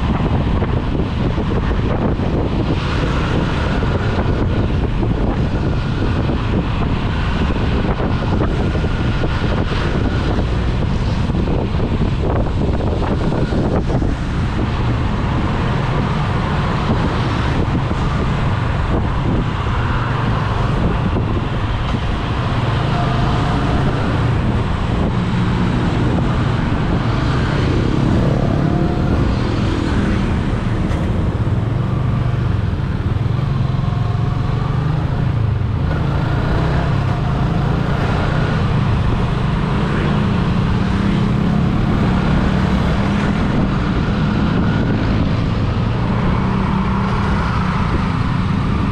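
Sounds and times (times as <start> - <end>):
road traffic rumble: 0.0 - 48.9.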